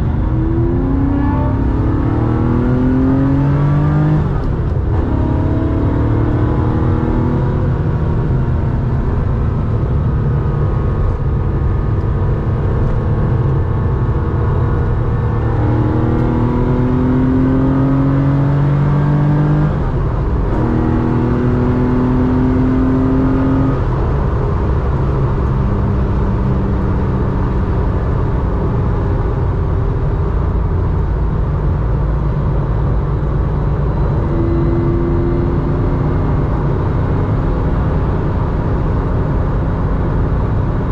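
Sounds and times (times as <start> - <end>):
car engine revving while driving: 0.0 - 40.9.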